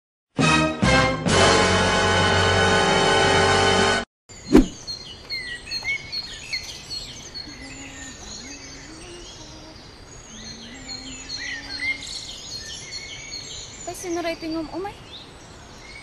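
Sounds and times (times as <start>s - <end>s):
theme music: 0.4s - 4.0s
birds chirping and tweeting: 4.3s - 16.0s
outdoor ambience: 4.3s - 16.0s.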